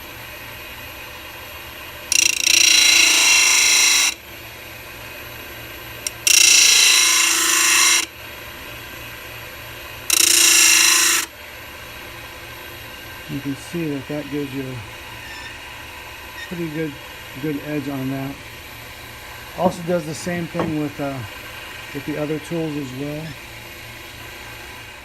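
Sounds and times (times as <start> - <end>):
lathe motor running: 0.0 - 25.0
metal grinding on sandpaper: 15.2 - 15.6.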